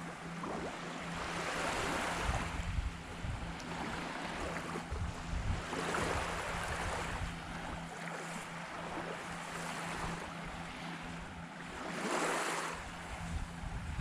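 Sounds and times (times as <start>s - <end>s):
wind gusting on microphone: 2.0s - 7.7s, 12.9s - 14.0s.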